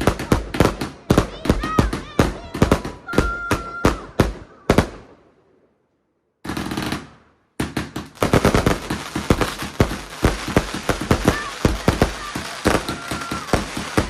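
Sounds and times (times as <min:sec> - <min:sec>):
fireworks banging: 0:00.0 - 0:05.2, 0:06.4 - 0:14.0
fireworks whistling: 0:06.5 - 0:14.0.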